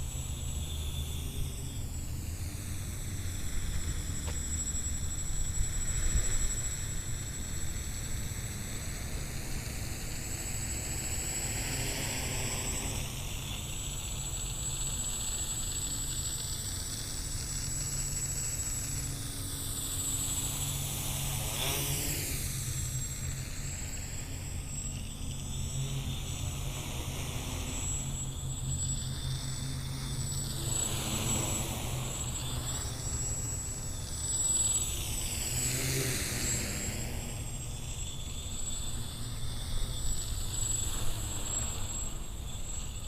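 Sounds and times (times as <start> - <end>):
drone propellers whirring: 0.0 - 43.0.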